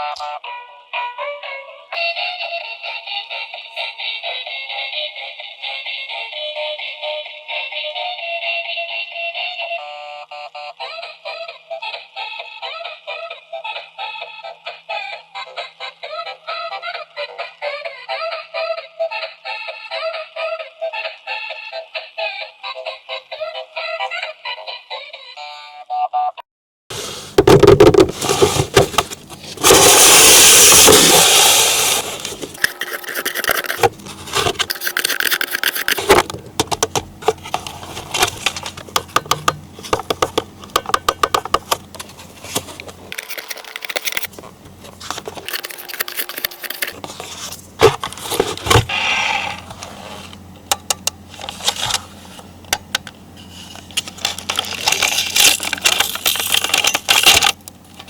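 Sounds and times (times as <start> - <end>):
packaging rustling: 27.2 - 39.0, 41.9 - 48.9, 53.4 - 58.0
toy clicks scrapes and rattles: 29.6 - 49.7, 53.6 - 58.0.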